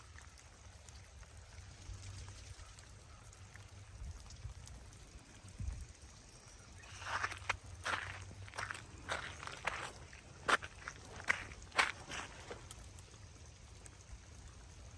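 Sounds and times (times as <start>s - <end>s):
faint hiss with low rumble: 0.0s - 14.9s
footsteps crunching on icy snow: 6.8s - 12.8s.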